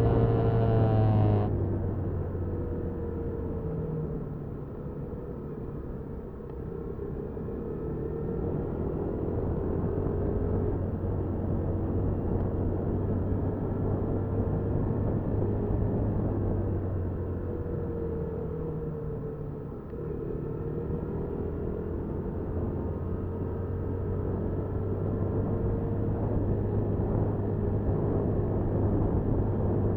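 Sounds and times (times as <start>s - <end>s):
small motorcycle engine running: 0.0s - 1.6s
road and wind noise: 0.0s - 29.9s.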